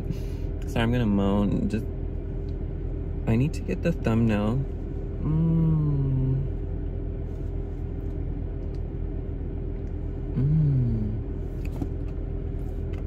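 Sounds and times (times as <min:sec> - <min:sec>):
car engine idling: 0:00.0 - 0:13.0
person humming moan: 0:05.2 - 0:06.6, 0:10.3 - 0:11.3.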